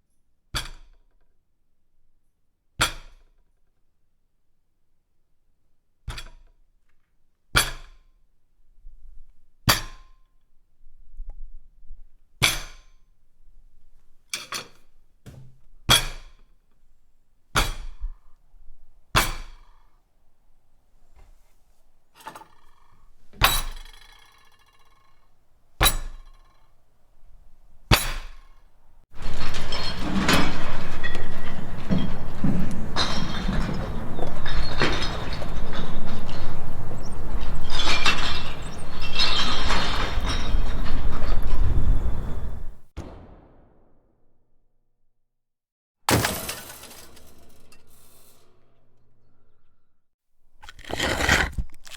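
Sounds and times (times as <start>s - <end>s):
breaking and crashing clatter: 29.1s - 42.6s, 46.1s - 47.9s, 50.6s - 51.9s.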